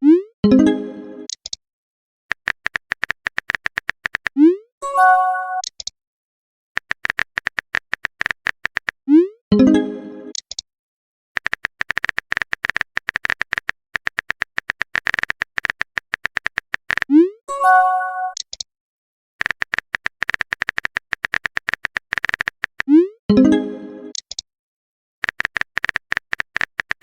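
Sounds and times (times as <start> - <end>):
text message alert chime: 0.4 - 1.0, 4.8 - 5.6, 9.5 - 10.0, 17.5 - 18.4, 23.3 - 23.7
phone keyboard typing clicks: 2.3 - 4.4, 5.5 - 5.9, 6.8 - 9.0, 10.3 - 10.6, 11.4 - 17.1, 18.2 - 18.7, 19.4 - 22.9, 24.1 - 24.4, 25.2 - 27.0.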